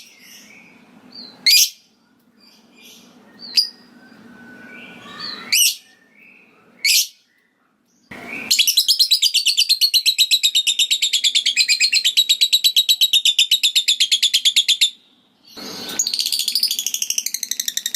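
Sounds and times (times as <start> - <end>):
lovebird chirps: 2.4 - 7.4, 8.0 - 17.9
lovebird chattering trill: 8.3 - 15.0.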